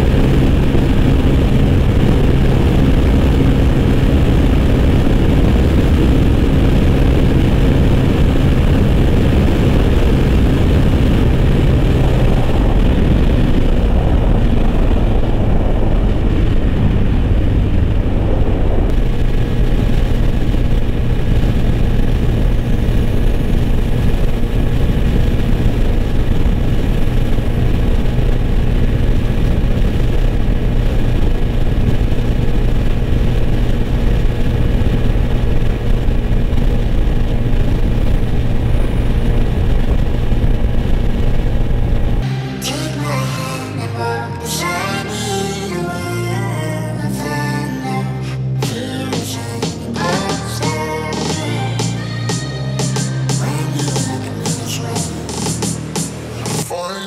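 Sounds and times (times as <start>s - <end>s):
motorcycle engine running: 0.0s - 42.6s
wind rush: 0.0s - 46.7s.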